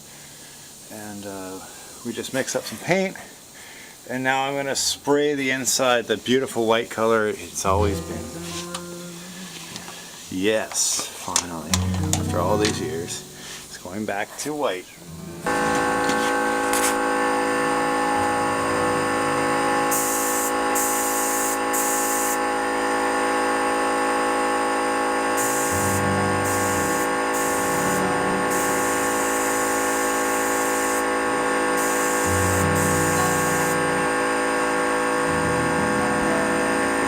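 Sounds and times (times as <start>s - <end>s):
paint spray hissing: 6.7s - 10.4s, 19.9s - 22.5s, 25.3s - 33.9s
paint spray gun motor hum: 7.7s - 10.3s, 15.4s - 37.0s.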